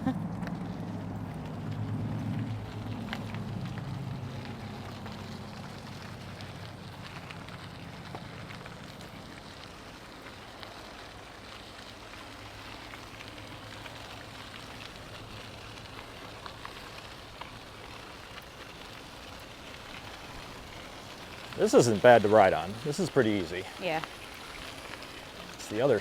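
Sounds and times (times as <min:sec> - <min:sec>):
bicycle tyres rolling on pavement: 0:00.0 - 0:26.0
small ticks: 0:00.3 - 0:23.0.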